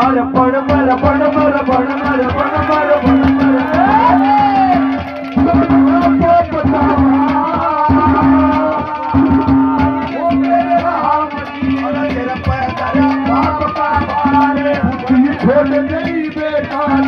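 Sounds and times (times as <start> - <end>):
hand drum beating fast rhythm: 0.0 - 17.0
held melody notes: 1.1 - 14.0.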